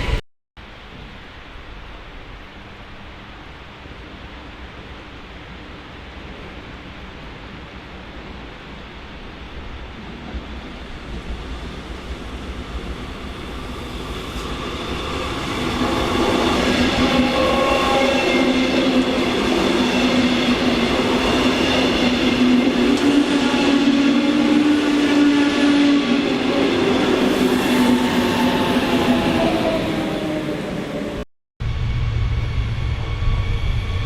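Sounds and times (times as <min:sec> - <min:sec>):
held train tones: 0:09.4 - 0:34.0
train wheels rumbling: 0:09.6 - 0:34.0.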